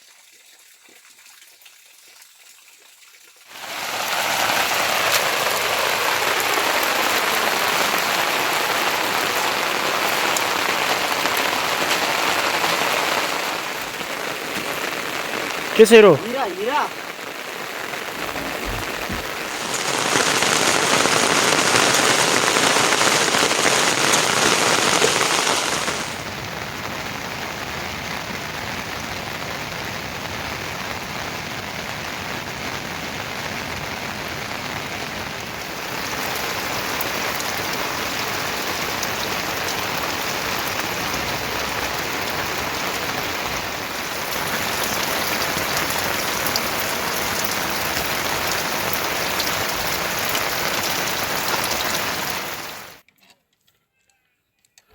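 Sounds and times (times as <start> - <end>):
steady rain falling: 3.4 - 53.0.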